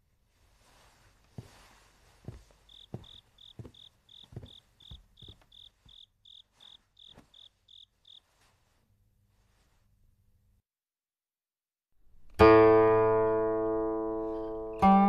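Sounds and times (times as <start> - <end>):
soft low thuds: 0.6 - 6.0
crickets chirping: 2.6 - 8.3.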